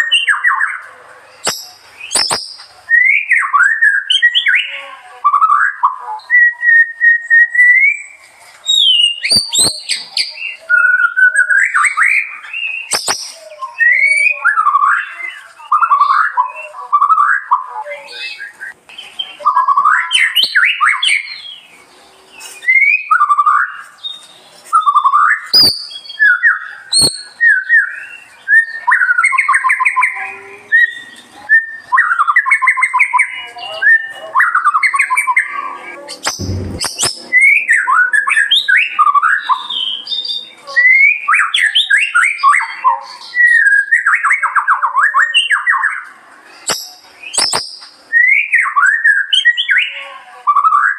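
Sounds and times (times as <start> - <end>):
songbird singing: 0.0 - 50.9
sharp clicks: 36.2 - 37.2.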